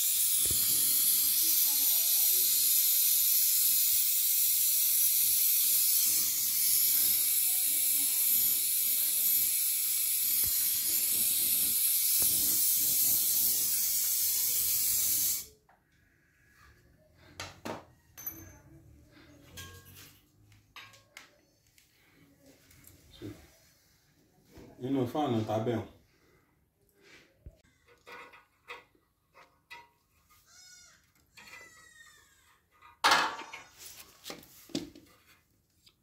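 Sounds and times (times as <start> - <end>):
torch flame hissing: 0.0 - 15.5.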